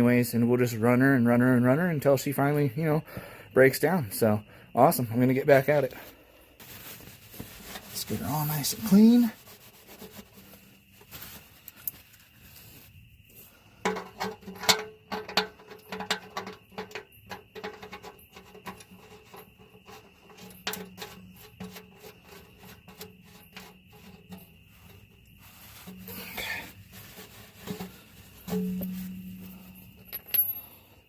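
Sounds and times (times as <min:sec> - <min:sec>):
faint steady tone: 0:17.7 - 0:31.0.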